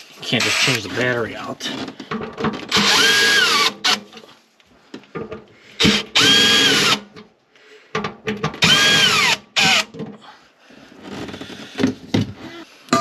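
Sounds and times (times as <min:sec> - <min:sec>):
power drill motor whine: 0:02.7 - 0:04.0, 0:06.2 - 0:07.0, 0:08.6 - 0:09.9.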